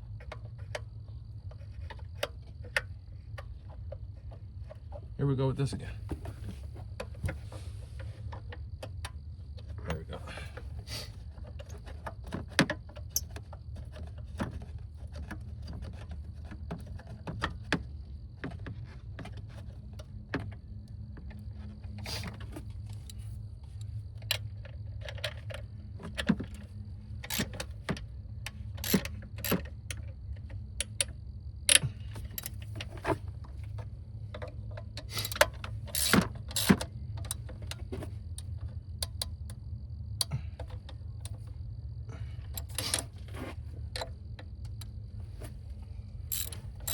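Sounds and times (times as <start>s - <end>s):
steady low hum: 19.7s - 46.9s
metallic tool clicks and clinks: 35.2s - 36.8s, 46.3s - 46.9s.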